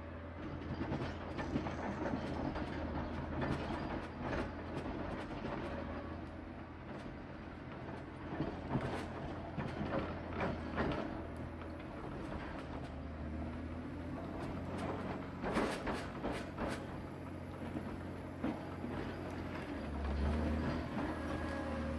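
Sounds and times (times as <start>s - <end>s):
machine clanks and rattles: 0.3s - 6.1s, 6.7s - 21.9s
diesel engine running: 6.7s - 21.9s.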